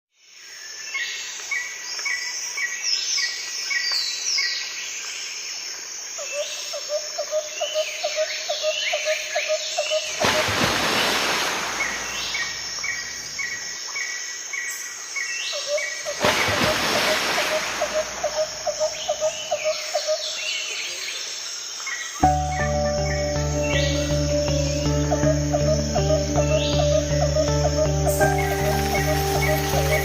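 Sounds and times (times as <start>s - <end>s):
birds chirping: 9.8s - 13.8s, 15.6s - 21.1s, 22.2s - 30.0s
rapid pulsing bird call: 15.6s - 20.5s, 22.3s - 30.0s.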